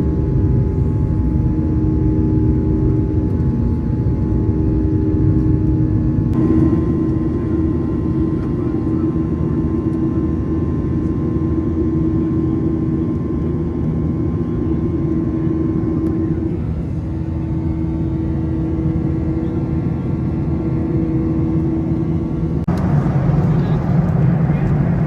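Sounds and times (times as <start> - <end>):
jet engines droning in cabin: 0.0 - 25.0
steady whining tones: 16.0 - 25.0.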